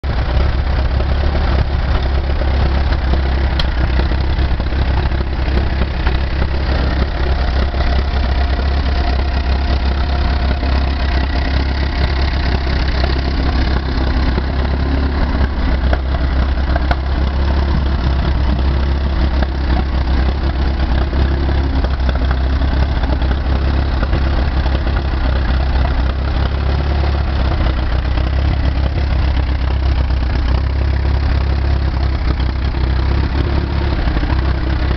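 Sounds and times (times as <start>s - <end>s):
tractor engine idling: 0.0s - 34.9s.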